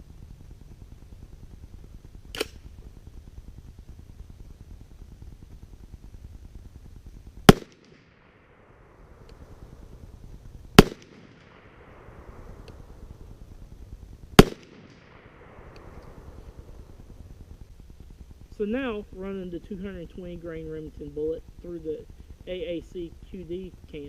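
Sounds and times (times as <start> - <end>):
rifle shots with echo: 7.4 - 10.1, 10.7 - 13.4, 14.4 - 17.1.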